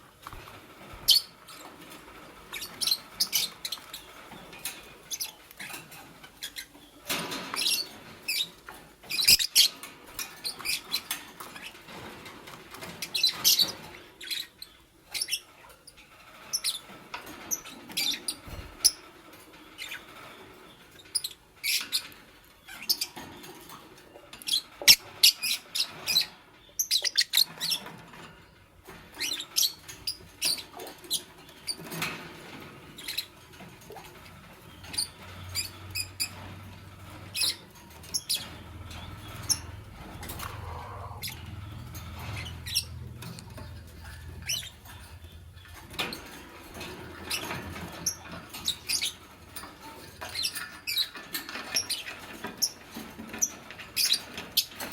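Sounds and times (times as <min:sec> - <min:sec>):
lovebirds chirping: 0:33.0 - 0:46.2.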